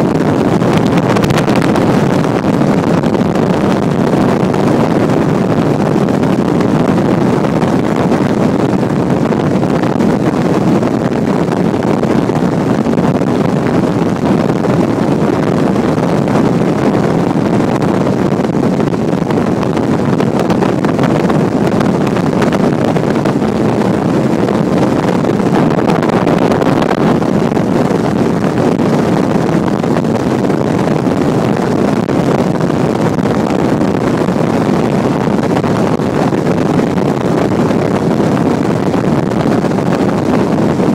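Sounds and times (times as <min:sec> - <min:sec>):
motorboat engine: 0:00.0 - 0:40.9
wind buffeting microphone: 0:00.0 - 0:40.9
water rushing: 0:00.2 - 0:09.5.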